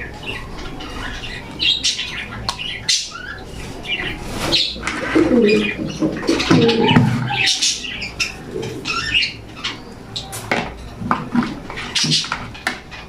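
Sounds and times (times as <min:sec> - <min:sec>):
high chirps and squawks: 0:00.0 - 0:10.4
pigeons cooing: 0:00.0 - 0:13.0.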